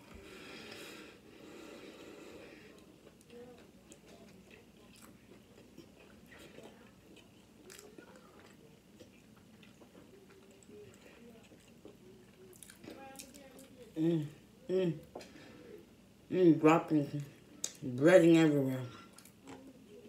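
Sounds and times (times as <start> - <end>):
faint close-mouthed chewing: 2.6 - 14.0, 18.9 - 20.0.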